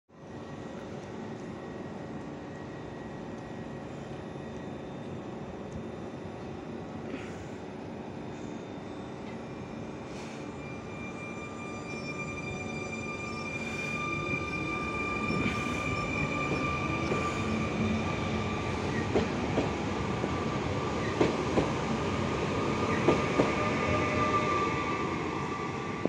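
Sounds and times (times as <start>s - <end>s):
electric train high whine: 0.2s - 26.0s
train wheels rumbling: 10.1s - 26.0s.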